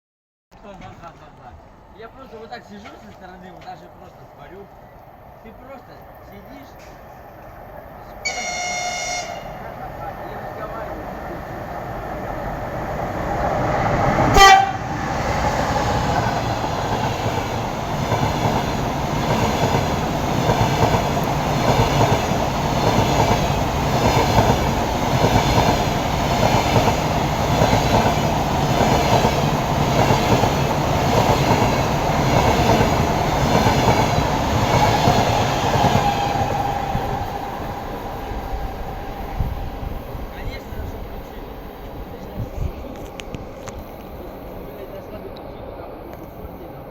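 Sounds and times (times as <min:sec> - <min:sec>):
train passing rumble: 0:00.6 - 0:46.9
locomotive horn blast: 0:08.2 - 0:09.7, 0:14.3 - 0:15.0.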